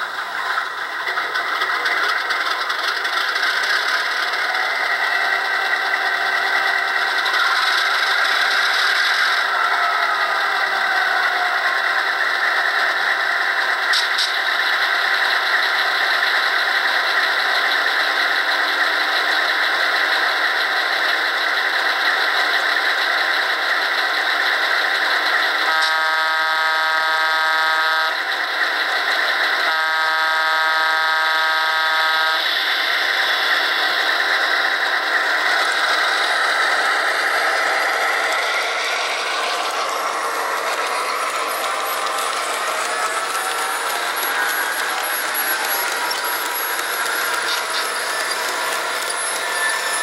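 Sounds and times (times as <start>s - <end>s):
model diesel engine sound: 0.0s - 50.0s
locomotive horn blasts: 25.6s - 28.2s, 29.6s - 32.4s.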